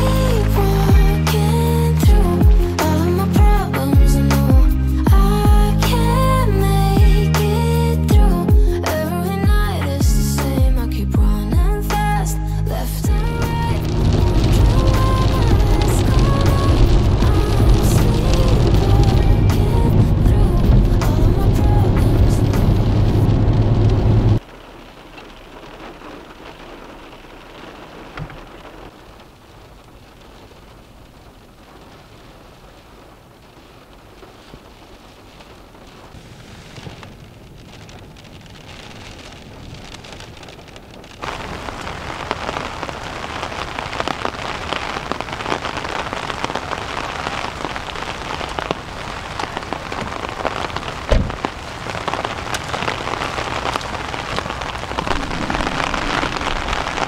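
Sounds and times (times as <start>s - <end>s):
rain drumming on a car: 0.0s - 12.3s, 12.9s - 57.0s
heavy downpour: 0.0s - 57.0s
sharp thump: 51.1s - 51.4s.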